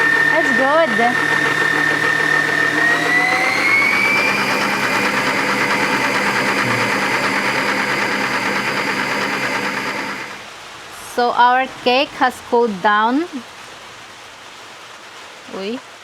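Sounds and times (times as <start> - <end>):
kitchen mixer motor whining: 0.0 - 10.5.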